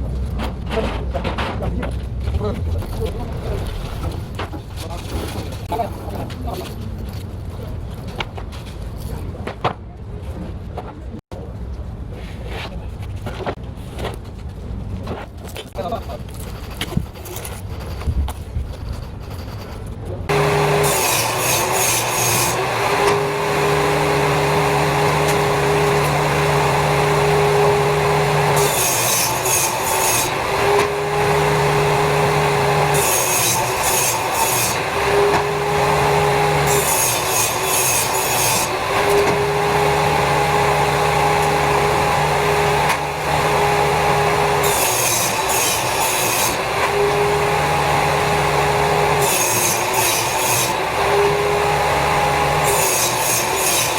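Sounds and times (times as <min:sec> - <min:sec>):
power saw cutting wood: 0:20.3 - 0:53.9.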